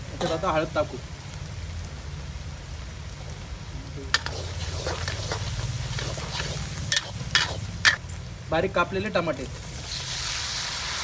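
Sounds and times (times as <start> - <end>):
food sizzling in oil: 0.0 - 11.0
ladle scraping pan: 4.2 - 8.0.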